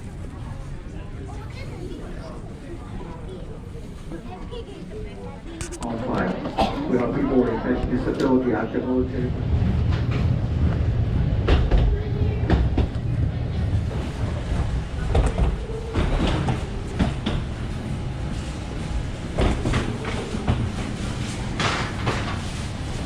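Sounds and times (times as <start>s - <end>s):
steady low rumble: 7.3s - 23.0s
footsteps and luggage clatter: 9.5s - 23.0s.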